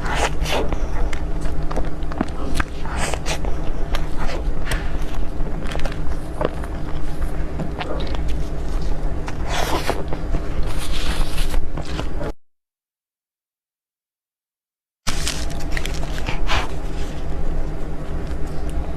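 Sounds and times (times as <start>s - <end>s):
chewing and biting: 0.0s - 12.3s, 15.1s - 17.4s
crunching: 0.0s - 12.3s, 15.1s - 17.4s
steady low hum: 0.0s - 12.4s, 15.1s - 18.9s.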